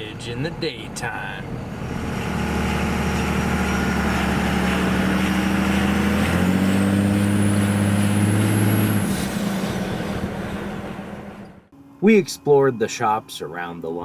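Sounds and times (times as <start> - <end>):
truck engine humming: 0.0 - 14.0
faint high whine: 11.7 - 14.0.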